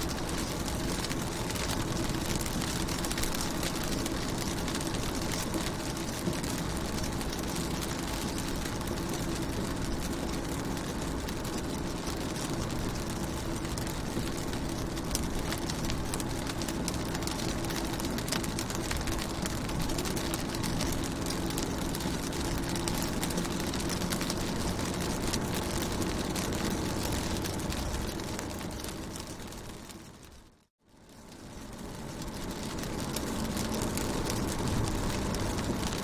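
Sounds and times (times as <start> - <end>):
rain on a car: 0.0 - 36.0
steady low hum: 31.1 - 36.0.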